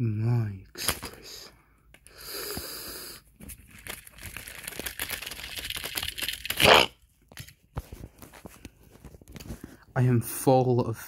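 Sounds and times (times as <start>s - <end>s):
objects rustling and clicking: 3.4s - 9.8s.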